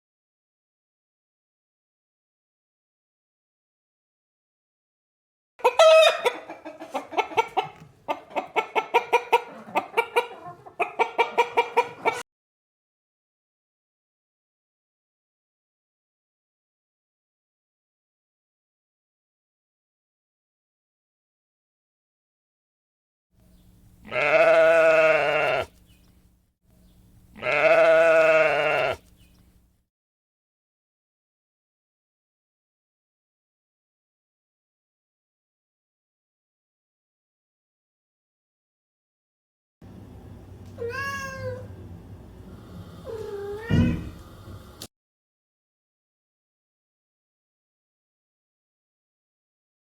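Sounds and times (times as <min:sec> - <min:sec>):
hen clucking: 0:05.6 - 0:12.2
long wavering bleats: 0:24.0 - 0:25.7, 0:27.4 - 0:29.0.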